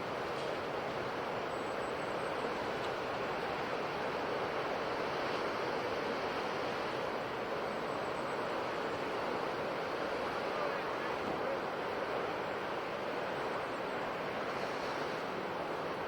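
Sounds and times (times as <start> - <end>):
sea waves washing on shore: 0.0 - 16.0.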